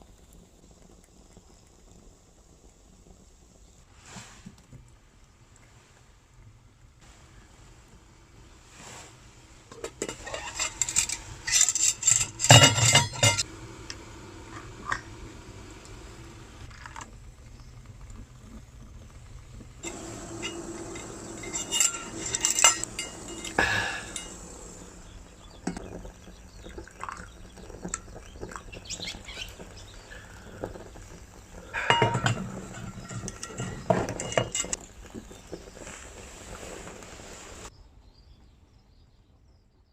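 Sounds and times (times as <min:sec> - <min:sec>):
metal pots and pans clinking: 0:09.7 - 0:13.4, 0:19.8 - 0:24.6, 0:31.7 - 0:34.8.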